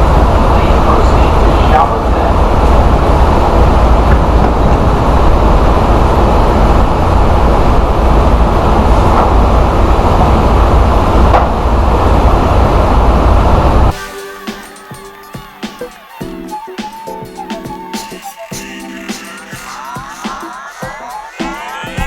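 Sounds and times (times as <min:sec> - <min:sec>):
truck road and engine rumble: 0:00.0 - 0:14.0.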